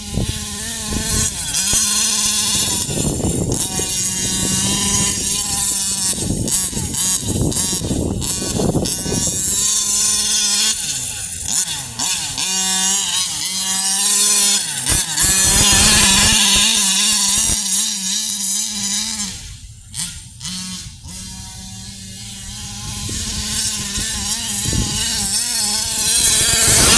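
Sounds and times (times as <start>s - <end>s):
two-stroke engine revving: 0.0s - 26.9s.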